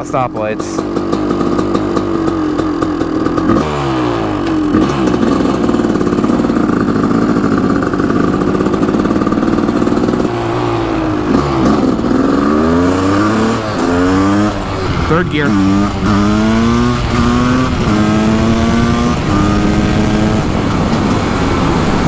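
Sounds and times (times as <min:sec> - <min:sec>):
two-stroke engine idling: 0:00.0 - 0:16.7
engine revving through gears: 0:00.8 - 0:22.0.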